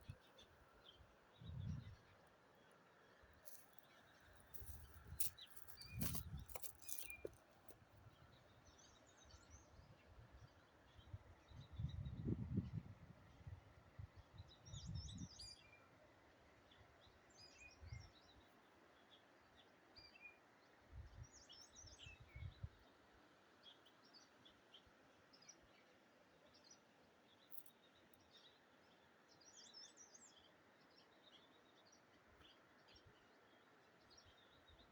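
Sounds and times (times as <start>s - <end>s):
wind buffeting microphone: 1.4s - 2.0s
small birds chirping: 3.5s - 7.8s.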